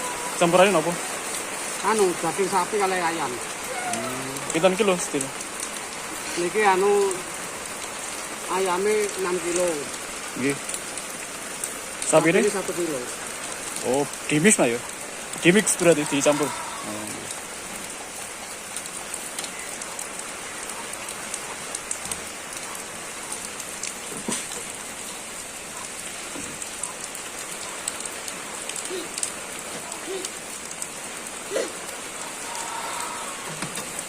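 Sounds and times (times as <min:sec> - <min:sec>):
steady rain falling: 0:00.0 - 0:34.0.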